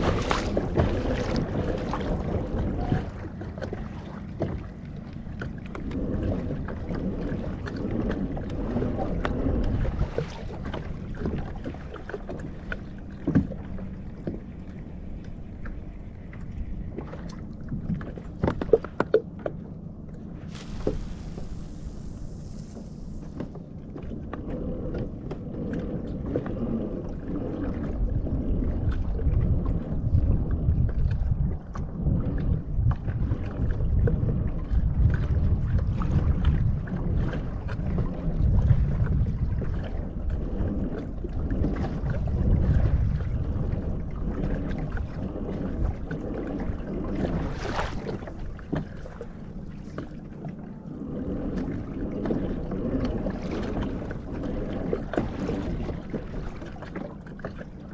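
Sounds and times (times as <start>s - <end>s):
wind buffeting microphone: 0.0s - 19.0s, 19.9s - 57.9s
water lapping against hull: 0.0s - 57.9s
low shifting rumble: 1.4s - 27.1s
small splashes: 20.4s - 23.8s.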